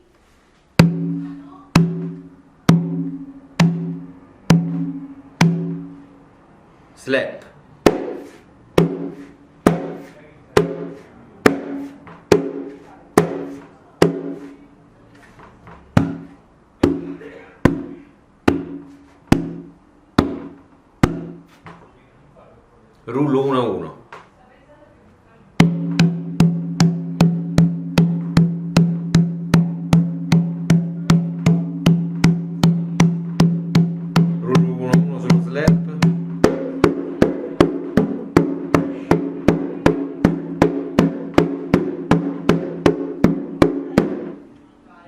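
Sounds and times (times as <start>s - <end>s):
hand drum slap strokes: 7.9s - 15.4s, 25.6s - 44.4s.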